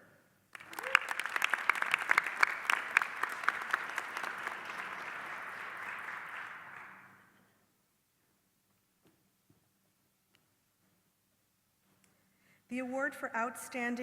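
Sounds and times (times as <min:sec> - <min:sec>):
audience applauding: 0:00.5 - 0:07.4.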